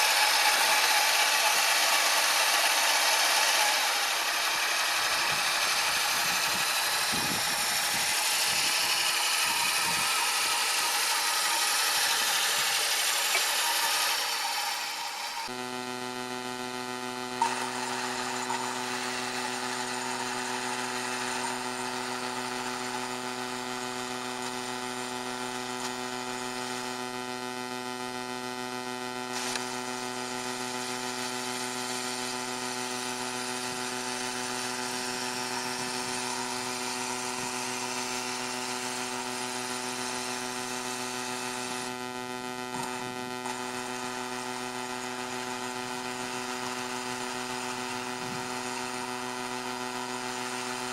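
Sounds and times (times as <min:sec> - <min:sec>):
hiss: 0:00.0 - 0:15.5
tractor motor whine: 0:00.0 - 0:50.9.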